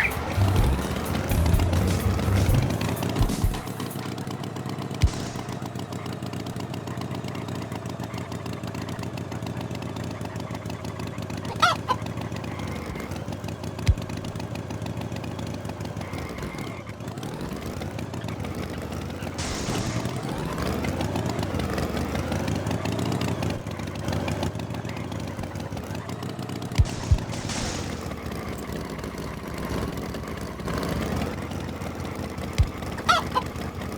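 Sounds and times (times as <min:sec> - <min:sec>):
short rising call: 0:00.0 - 0:04.0
chickens clucking: 0:11.4 - 0:12.1, 0:32.6 - 0:33.8
steady low hum: 0:26.8 - 0:30.0.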